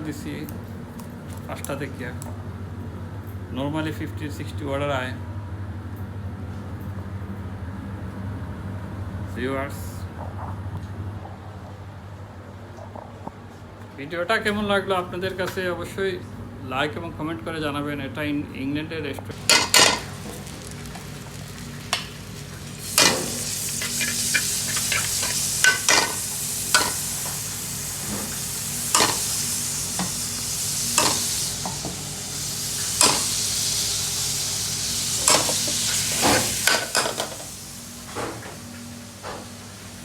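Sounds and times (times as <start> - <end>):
food sizzling in a pan: 19.4 - 40.0.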